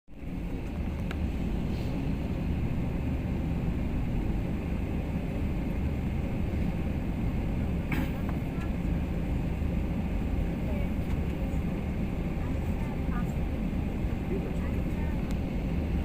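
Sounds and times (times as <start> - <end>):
jet engines rumbling: 0.1 - 16.0
faint click: 15.2 - 15.4.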